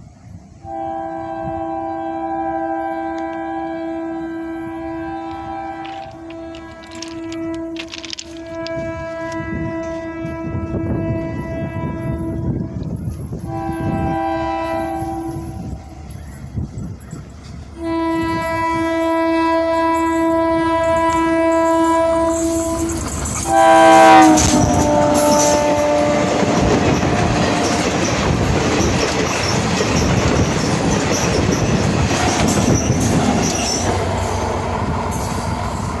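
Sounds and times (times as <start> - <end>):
train horn blasts: 0.6 - 16.2, 17.8 - 28.1
train coaches clattering on rails: 4.5 - 36.0.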